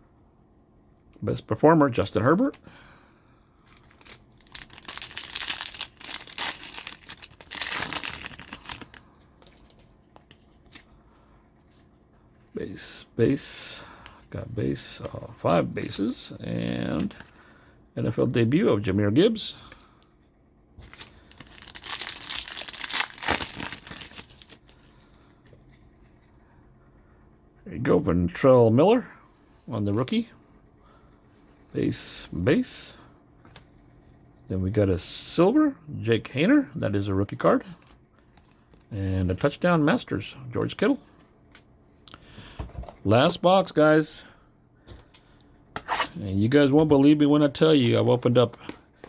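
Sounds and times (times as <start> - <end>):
wrapper crinkling and tearing: 3.7 - 10.8, 20.8 - 25.1.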